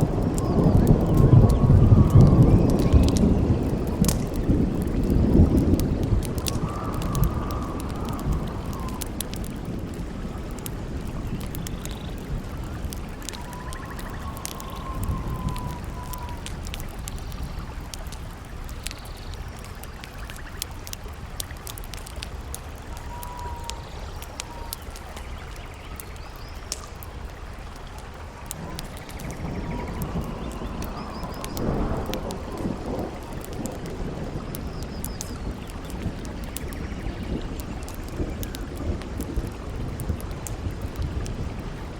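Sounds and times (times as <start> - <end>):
campfire crackling and popping: 0.0 - 41.9
wind howling whistles: 0.0 - 41.9.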